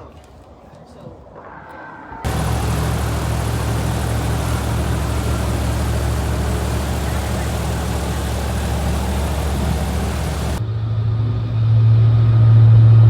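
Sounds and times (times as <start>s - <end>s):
airboat engine and propeller: 2.3s - 10.6s.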